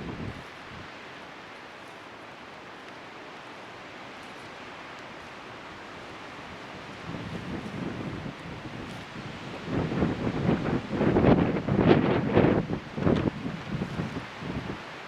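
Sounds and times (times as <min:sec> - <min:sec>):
wind buffeting microphone: 0:00.0 - 0:01.0, 0:06.0 - 0:14.9
wind: 0:00.0 - 0:15.0.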